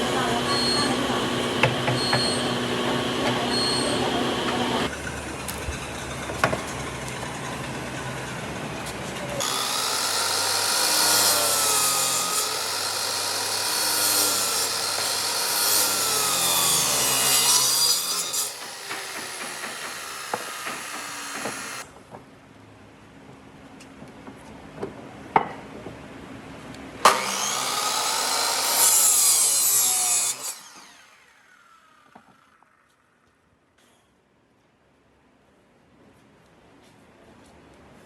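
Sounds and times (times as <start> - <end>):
power tools working wood: 0.0 - 5.6, 9.3 - 21.9, 27.0 - 32.7
high hissing tool: 9.4 - 21.8.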